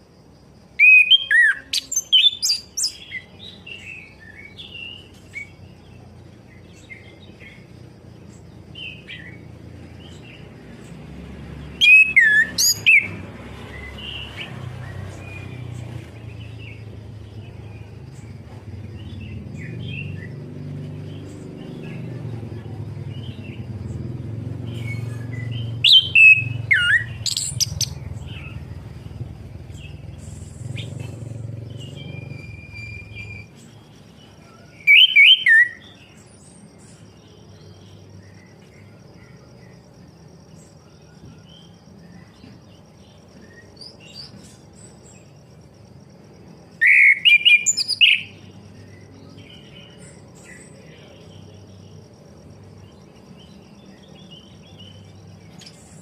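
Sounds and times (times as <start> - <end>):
thrush singing: 21.0 - 33.5.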